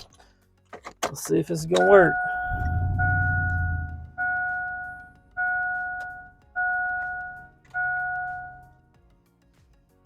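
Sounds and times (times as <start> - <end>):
dashboard warning chime: 1.6 - 8.8.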